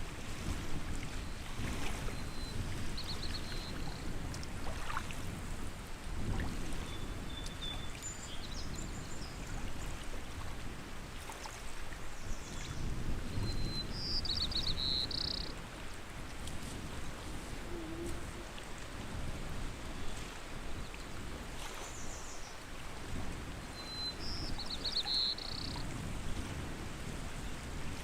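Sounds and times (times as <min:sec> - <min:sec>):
lake water lapping: 0:00.0 - 0:08.2, 0:09.0 - 0:13.0, 0:15.1 - 0:23.7
small birds chirping: 0:13.8 - 0:15.5.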